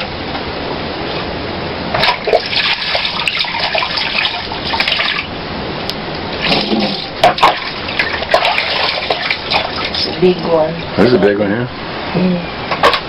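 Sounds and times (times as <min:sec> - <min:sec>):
running water splashing: 0:02.0 - 0:05.3, 0:06.3 - 0:10.7.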